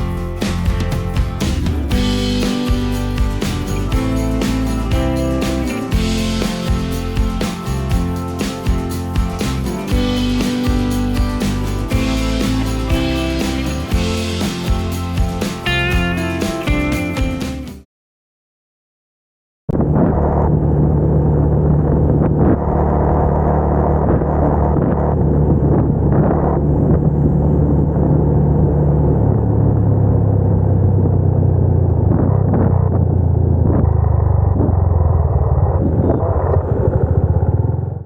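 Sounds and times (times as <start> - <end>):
motorcycle engine running: 0.0 - 17.8, 22.1 - 38.0.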